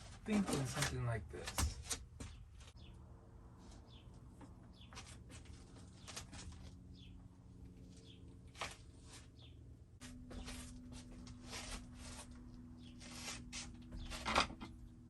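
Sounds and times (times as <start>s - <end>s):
low steady hum: 0.0s - 15.0s
faint bird chirping: 2.3s - 9.7s.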